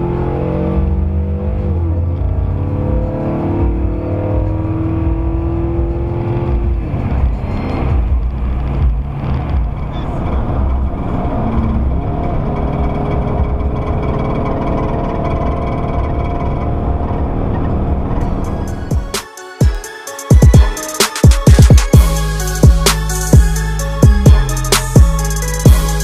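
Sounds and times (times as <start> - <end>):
vehicle engine accelerating: 0.0 - 19.2.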